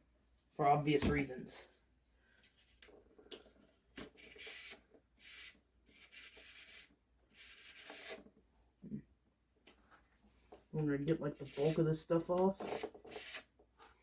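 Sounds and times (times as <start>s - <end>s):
cardboard scraping metal: 12.6s - 14.0s.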